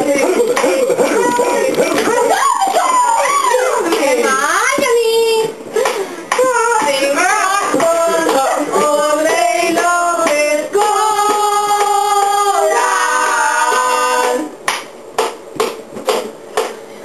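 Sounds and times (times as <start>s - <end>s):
voices singing in harmony: 6.4s - 14.6s.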